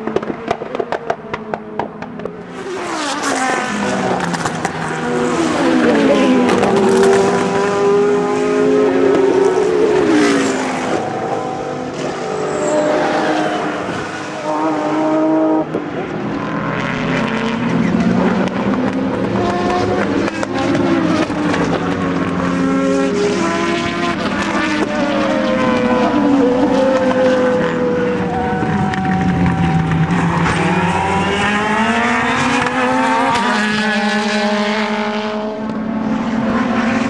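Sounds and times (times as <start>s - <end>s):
race cars passing at speed: 0.0s - 37.0s.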